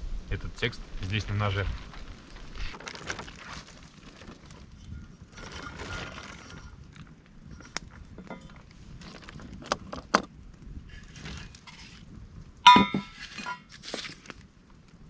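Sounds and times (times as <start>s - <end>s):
rustling: 1.4s - 10.1s, 10.9s - 12.1s, 12.7s - 14.5s.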